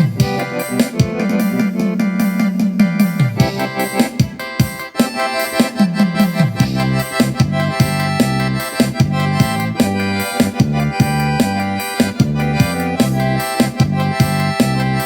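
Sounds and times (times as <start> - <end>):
accordion tune over beat and bass: 0.0 - 15.0.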